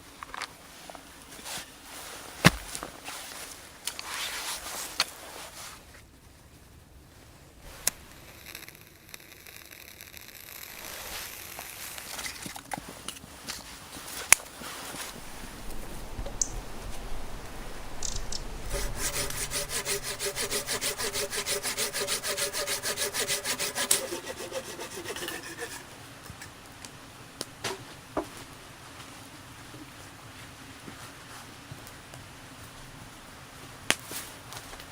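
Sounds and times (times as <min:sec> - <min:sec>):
hand saw cutting wood: 0:18.7 - 0:26.0.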